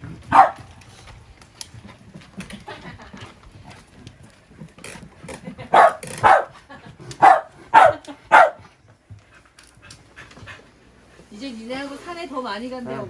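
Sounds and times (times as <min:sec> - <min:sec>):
dog barking: 0:00.3 - 0:00.7, 0:05.7 - 0:06.6, 0:07.2 - 0:08.7.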